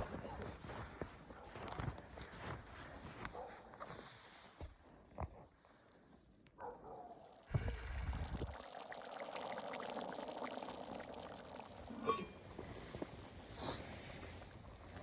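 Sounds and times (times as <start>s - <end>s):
small crackles: 0.3s - 15.0s
soup bubbling at a boil: 7.0s - 15.0s.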